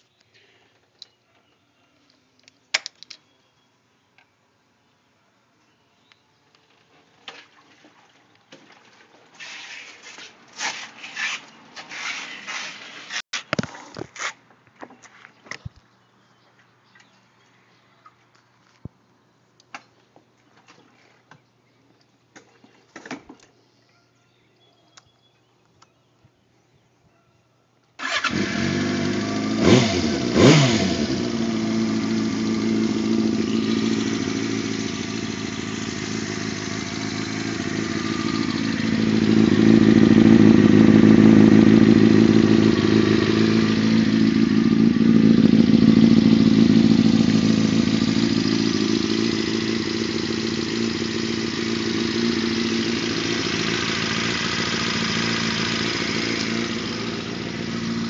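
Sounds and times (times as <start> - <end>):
motorcycle engine idling: 28.0 - 58.0
motorcycle engine revving: 28.0 - 58.0.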